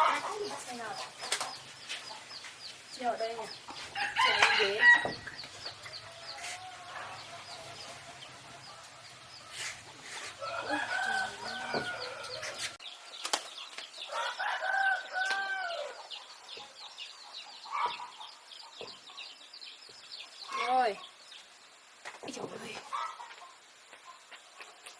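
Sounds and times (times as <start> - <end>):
baby birds chirping: 0.0 - 21.6
rooster crowing: 4.0 - 12.8, 14.1 - 16.0.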